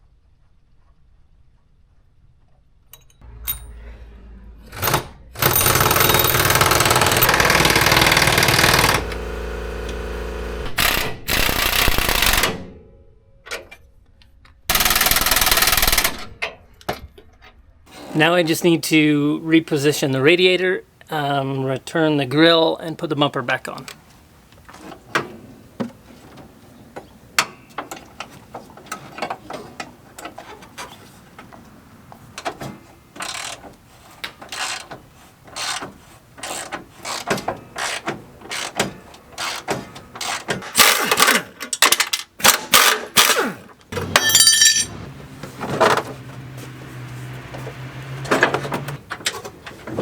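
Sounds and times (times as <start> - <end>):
metal parts clinking: 39.4 - 43.4, 44.0 - 45.0.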